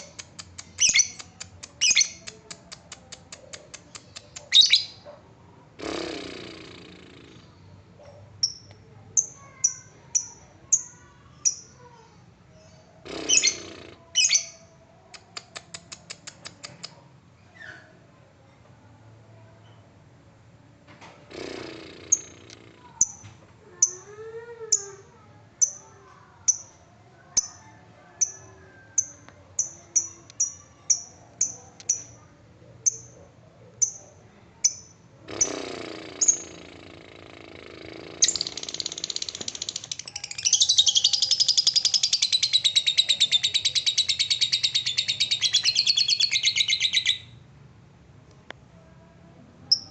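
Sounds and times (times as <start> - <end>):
lovebird chirping: 0.0 - 2.3, 3.9 - 5.0, 12.6 - 14.7, 23.8 - 24.1, 33.8 - 34.0, 34.6 - 35.6, 36.2 - 36.7, 38.2 - 47.4
bird chattering trill: 0.0 - 5.0, 13.1 - 14.6, 21.4 - 23.2, 34.6 - 36.8, 38.2 - 47.3.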